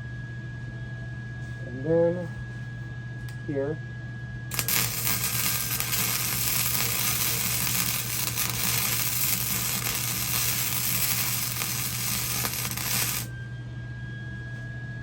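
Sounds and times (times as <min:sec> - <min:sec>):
welding arc crackling: 0:04.5 - 0:13.3.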